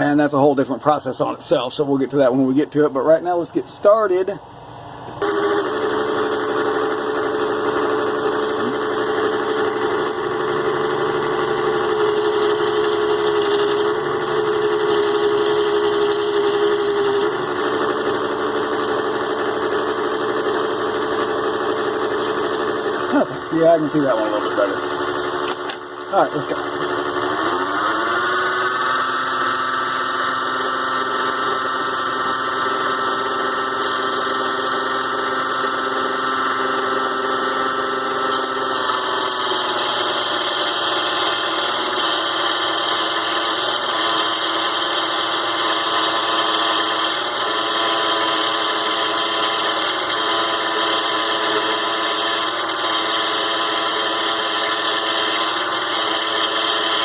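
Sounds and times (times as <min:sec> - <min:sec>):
lathe motor whining: 0:05.0 - 0:57.0.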